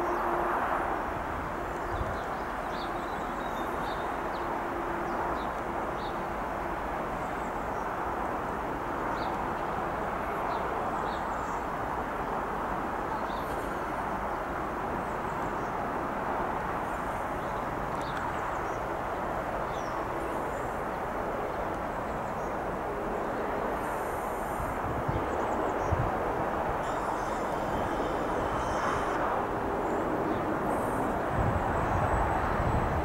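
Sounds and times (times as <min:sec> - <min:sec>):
electric train running slowly: 0:00.0 - 0:33.0
birds chirping: 0:25.1 - 0:31.2.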